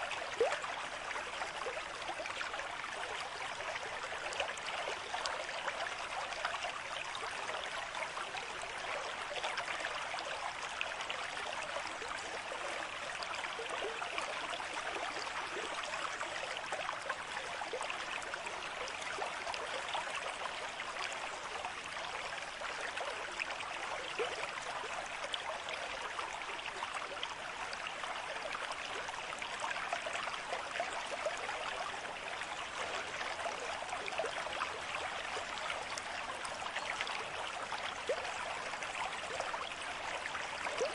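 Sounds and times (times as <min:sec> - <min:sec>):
stream water babbling: 0:00.0 - 0:40.9.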